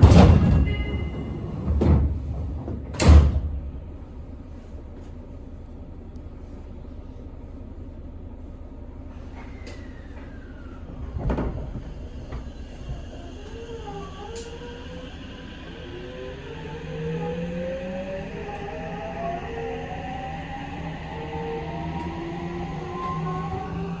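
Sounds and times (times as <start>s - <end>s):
train car thumps: 0.0s - 4.3s, 10.9s - 13.4s
train rumble: 0.0s - 24.0s.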